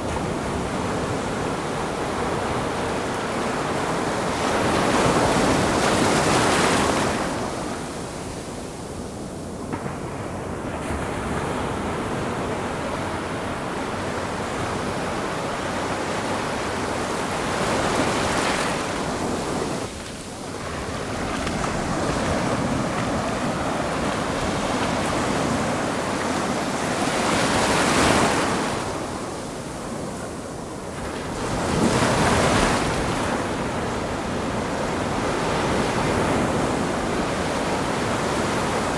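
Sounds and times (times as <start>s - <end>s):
ocean waves breaking: 15.6s - 38.9s.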